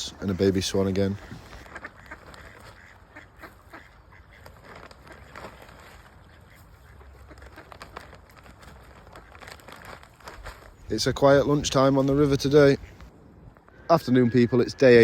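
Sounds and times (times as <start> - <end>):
ducks quacking: 0.7 - 8.2.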